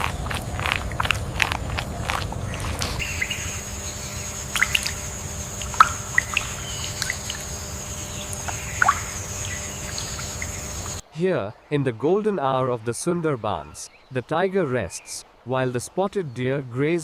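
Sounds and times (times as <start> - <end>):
water drips: 0.0 - 11.0
wind and water wash: 0.0 - 11.1
high thin insect tone: 2.5 - 11.0.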